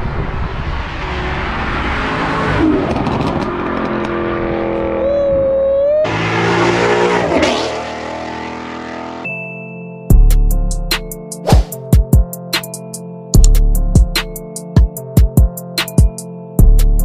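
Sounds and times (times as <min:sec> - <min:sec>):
cars accelerating hard: 0:00.0 - 0:09.3.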